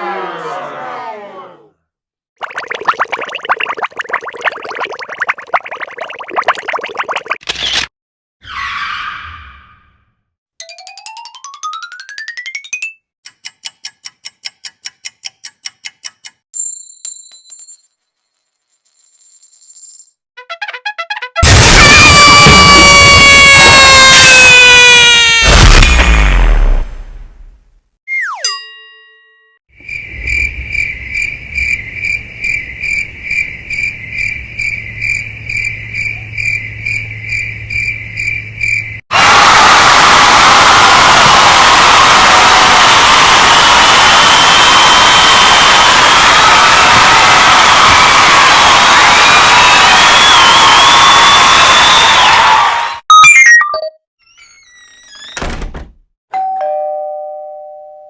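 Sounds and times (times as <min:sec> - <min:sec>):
clock ticking: 0:13.2 - 0:16.4
bell ringing: 0:28.4 - 0:29.6
cricket chirping: 0:29.8 - 0:39.0.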